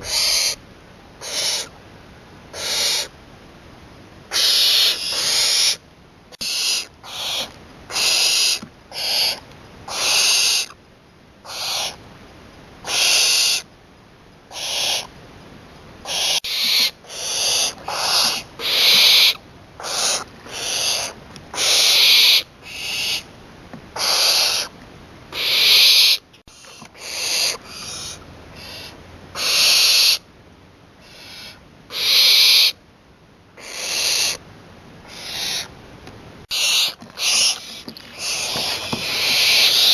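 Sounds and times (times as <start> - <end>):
owl hissing screeches: 0.0 - 0.6, 1.2 - 1.7, 2.5 - 3.1, 4.3 - 10.8, 11.4 - 12.0, 12.8 - 13.7, 14.5 - 15.1, 16.0 - 23.3, 24.0 - 24.7, 25.3 - 30.2, 31.0 - 32.8, 33.6 - 34.4, 35.1 - 35.7, 36.5 - 39.9.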